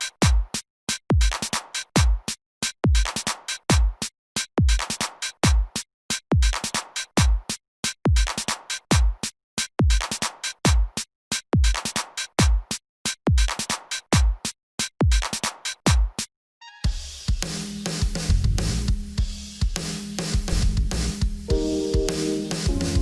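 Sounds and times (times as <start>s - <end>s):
deep kick drum: 18.3s - 19.8s, 22.7s - 23.0s.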